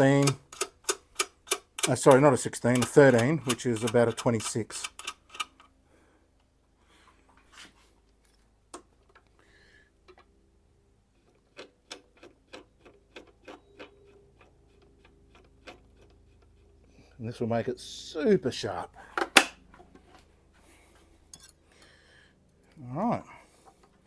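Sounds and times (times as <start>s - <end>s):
small metal parts clicking: 0.0s - 5.7s.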